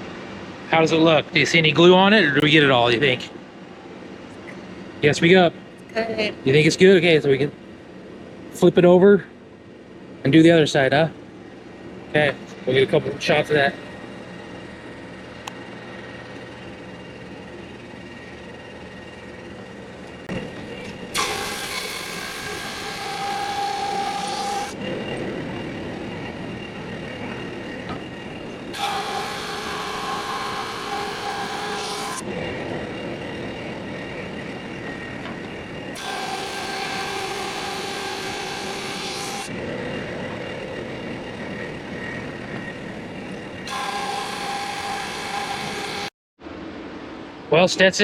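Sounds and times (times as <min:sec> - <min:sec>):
drum sander running: 0:11.3 - 0:46.1.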